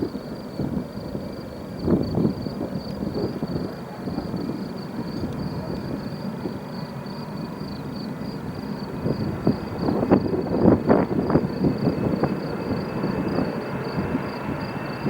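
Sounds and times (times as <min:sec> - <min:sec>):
jet engines rumbling: 0:00.0 - 0:15.0
wind buffeting microphone: 0:00.0 - 0:15.0.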